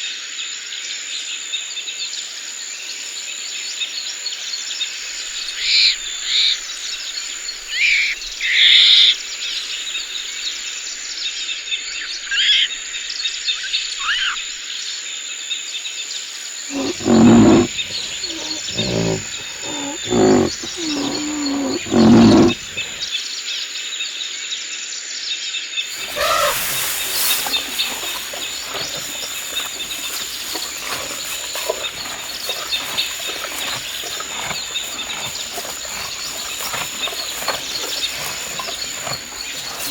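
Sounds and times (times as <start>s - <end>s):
birds calling: 16.7s - 23.1s, 25.9s - 39.9s
dense forest background: 16.7s - 23.1s, 25.9s - 39.9s
low animal calls: 16.7s - 23.1s, 25.9s - 39.9s
high insect drone: 25.9s - 39.9s.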